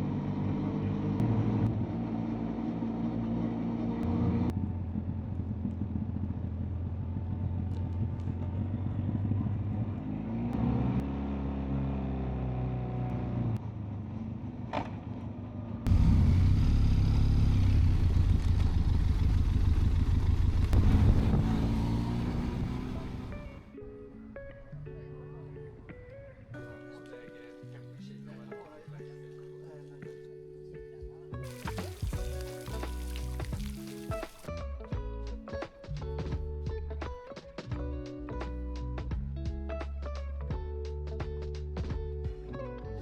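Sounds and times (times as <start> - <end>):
motorcycle engine revving: 0.0 - 23.8, 31.4 - 34.5.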